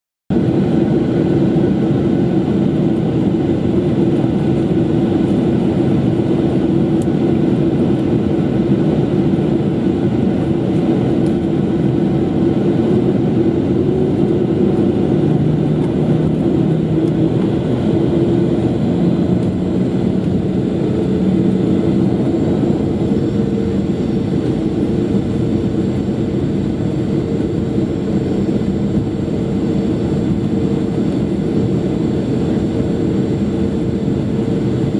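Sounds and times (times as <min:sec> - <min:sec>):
airplane cabin jet engine rumble: 0:00.3 - 0:34.9.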